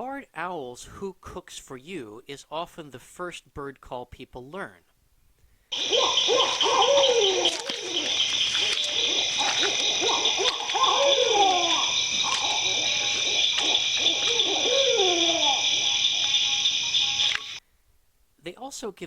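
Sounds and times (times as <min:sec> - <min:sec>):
owl hooting: 0:05.7 - 0:17.6.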